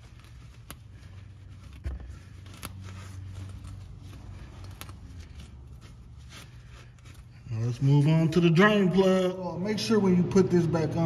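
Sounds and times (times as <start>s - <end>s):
rag rustling: 0.0s - 8.0s.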